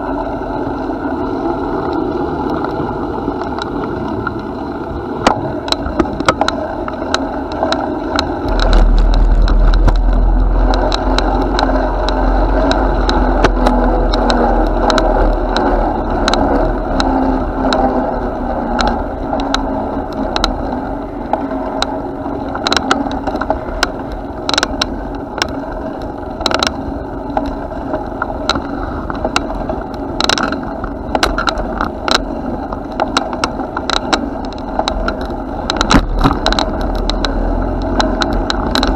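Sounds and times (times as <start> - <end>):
bicycle rattles and clicks: 0.0 - 38.9
bicycle rolling: 0.0 - 38.9
wind rumble on microphone: 0.0 - 38.9.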